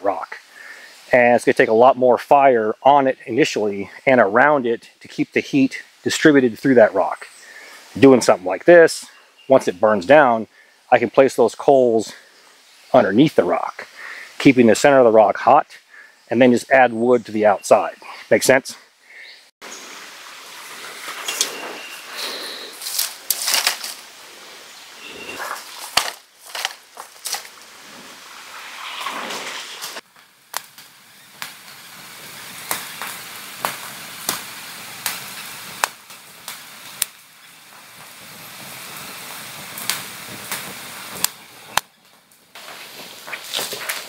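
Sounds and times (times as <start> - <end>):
campfire crackling and popping: 0.0 - 18.6, 19.6 - 44.0
rustling: 20.2 - 37.1, 37.7 - 44.0.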